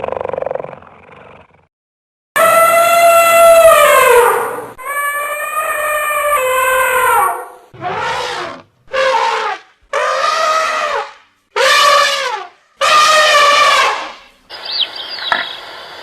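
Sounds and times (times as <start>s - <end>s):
animal calling: 13.2s - 15.7s.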